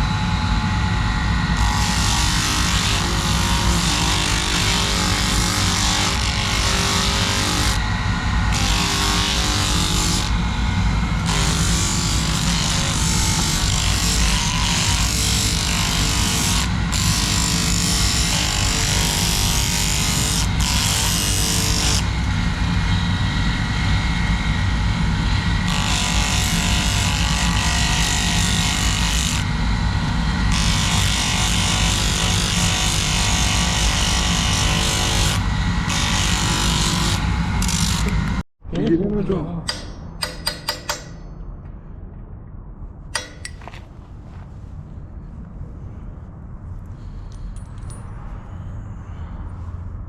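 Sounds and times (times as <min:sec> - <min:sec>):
power tool motor running: 0:01.6 - 0:22.0, 0:30.5 - 0:38.4.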